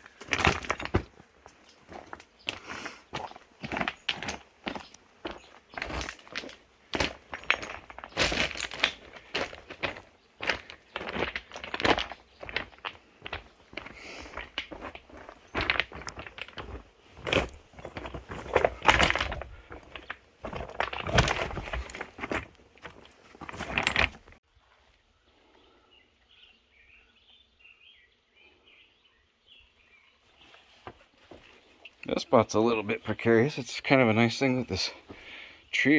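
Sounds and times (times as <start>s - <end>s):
footsteps and scrapes on rock: 0.0s - 24.4s, 30.3s - 32.1s, 33.0s - 35.4s.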